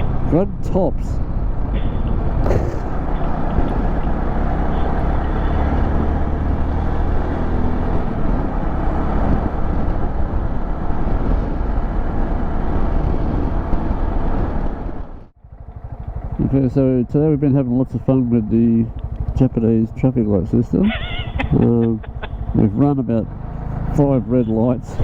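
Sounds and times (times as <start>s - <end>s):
motorcycle engine: 0.0s - 25.0s
road noise: 0.0s - 25.0s
wind noise: 1.1s - 15.3s.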